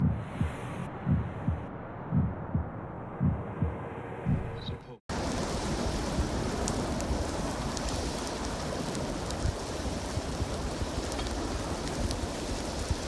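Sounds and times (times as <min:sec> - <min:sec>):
dense rushing noise: 0:00.0 - 0:13.0
sharp crackles: 0:05.1 - 0:13.0.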